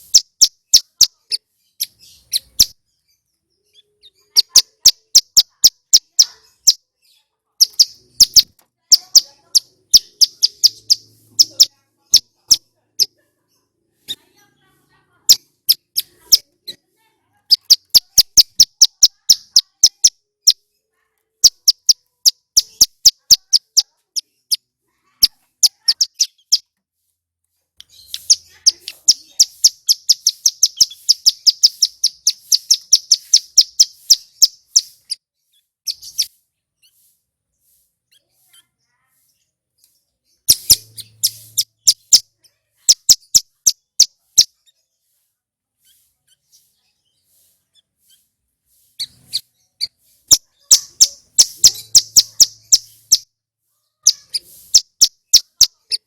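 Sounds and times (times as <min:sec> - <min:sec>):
bird singing high ticking notes: 0:00.0 - 0:13.1, 0:15.3 - 0:16.8, 0:17.5 - 0:20.7, 0:21.4 - 0:26.7, 0:27.8 - 0:37.0, 0:39.8 - 0:44.7, 0:49.0 - 0:53.4, 0:54.0 - 0:56.0.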